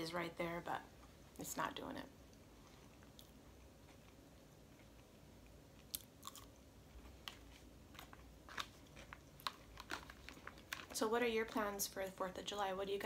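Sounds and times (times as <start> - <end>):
chewing salad: 2.6 - 6.6.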